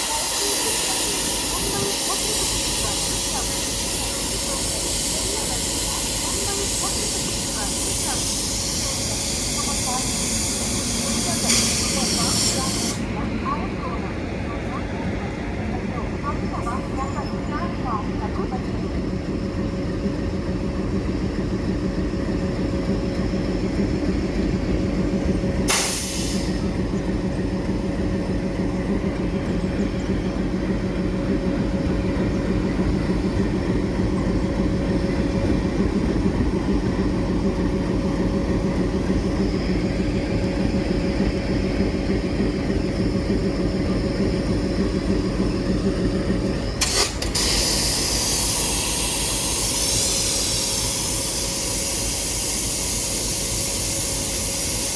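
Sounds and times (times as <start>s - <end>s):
air pressure release hiss: 0.0s - 13.0s, 25.6s - 26.7s, 46.8s - 54.9s
diesel locomotive engine idling: 0.0s - 54.9s.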